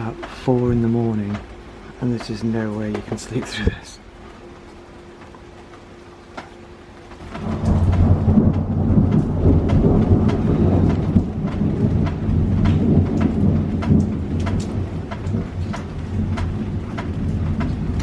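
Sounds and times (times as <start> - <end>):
rain pattering: 0.0 - 18.0
rolling thunder: 7.2 - 18.0.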